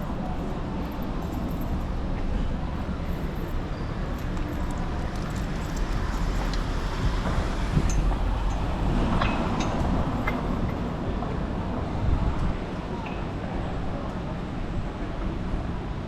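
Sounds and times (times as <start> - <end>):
light clicks and rattles: 2.8 - 8.6.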